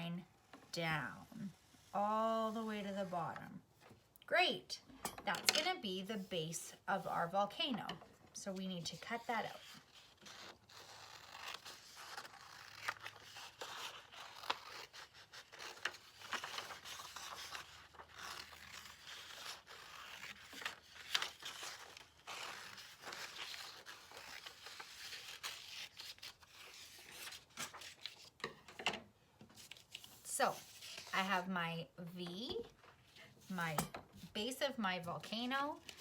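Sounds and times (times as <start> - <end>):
paper rustling: 9.0 - 28.5, 29.5 - 31.5, 35.2 - 36.0.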